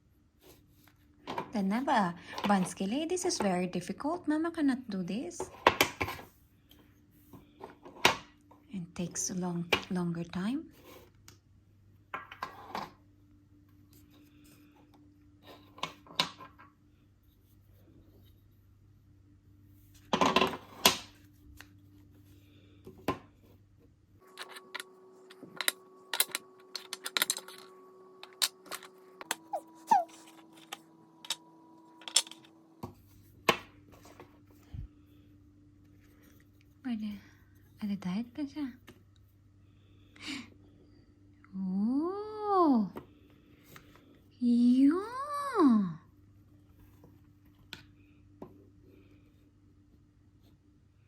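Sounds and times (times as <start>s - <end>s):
faint steady hum: 20.9s - 51.0s.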